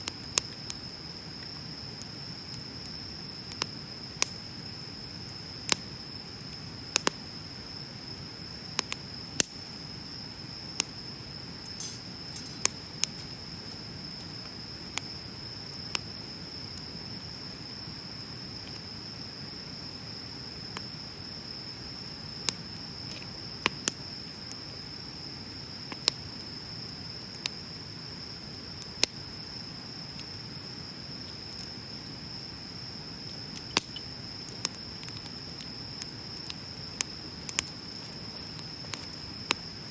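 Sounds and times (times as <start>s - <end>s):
bonfire crackling and popping: 0.0s - 39.9s
insect trilling: 33.1s - 39.9s.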